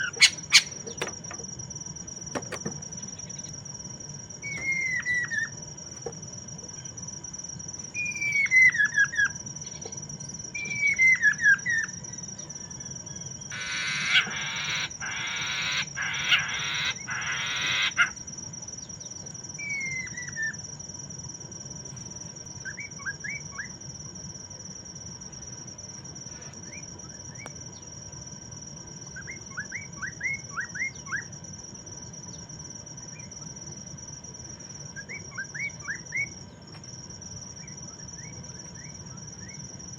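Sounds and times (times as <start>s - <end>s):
bird harsh rasping calls: 0.0s - 1.1s, 13.5s - 18.2s
bird whistled song: 0.0s - 1.1s, 4.4s - 5.6s, 7.9s - 9.8s, 10.5s - 18.1s, 19.0s - 20.6s, 22.6s - 23.8s, 29.1s - 31.3s, 35.0s - 36.4s, 37.6s - 39.6s.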